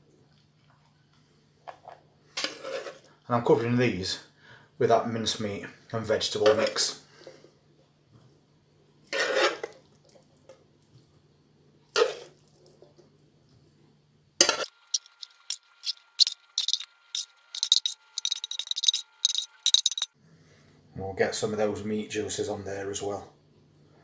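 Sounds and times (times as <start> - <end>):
spoon scraping casserole dish: 14.4 - 20.0.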